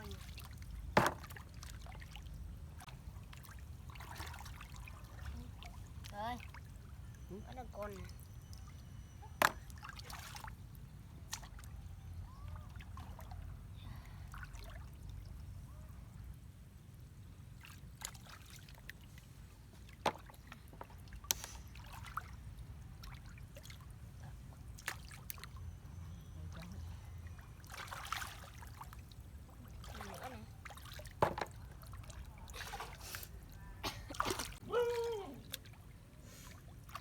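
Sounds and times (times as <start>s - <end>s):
splashes and knocks in water: 0.0s - 6.7s, 9.4s - 10.6s, 11.2s - 11.7s, 17.6s - 22.3s, 24.7s - 25.5s, 27.6s - 33.2s, 34.1s - 35.8s.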